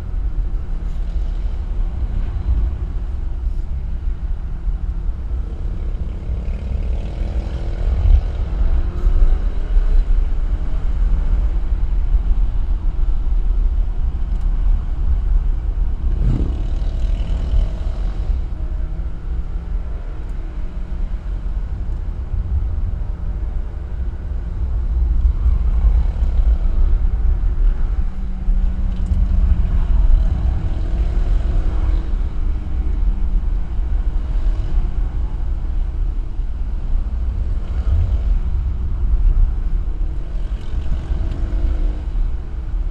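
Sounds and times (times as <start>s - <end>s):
car engine rumble: 0.0s - 42.9s
road noise: 0.0s - 42.9s.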